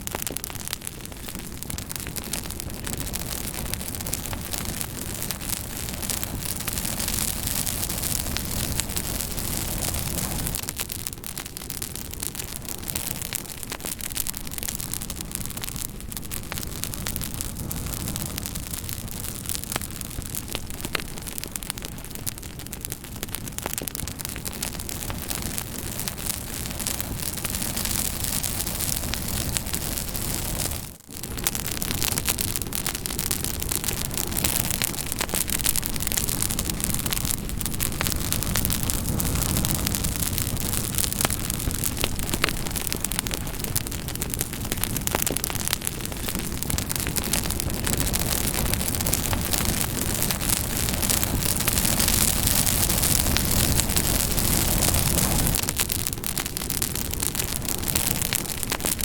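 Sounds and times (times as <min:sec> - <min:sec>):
campfire flame rushing: 0:00.0 - 0:59.0
wood crackling and popping: 0:00.0 - 0:59.0.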